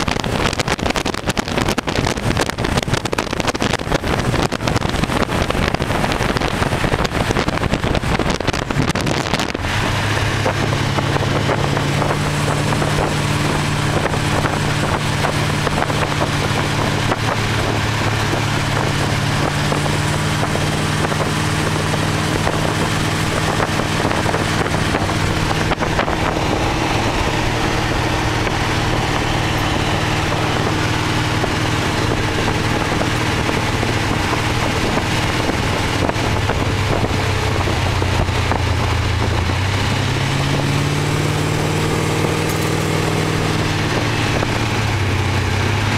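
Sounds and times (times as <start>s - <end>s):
car engine driving: 0.0s - 45.9s
wind rushing over microphone: 0.0s - 45.9s.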